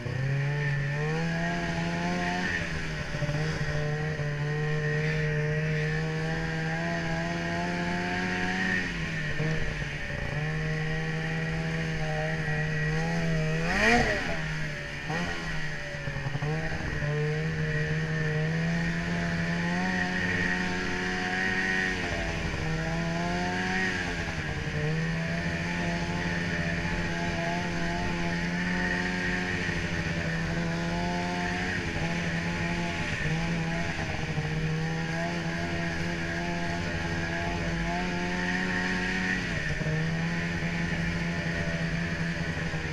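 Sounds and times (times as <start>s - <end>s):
snowmobile engine running: 0.0s - 42.9s.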